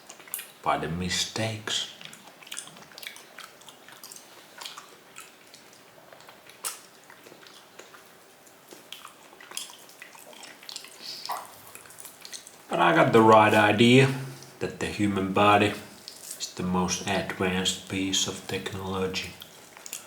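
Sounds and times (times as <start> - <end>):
person chewing with wet smacks: 0.0 - 0.6, 1.8 - 13.6, 15.8 - 17.5, 18.5 - 20.0.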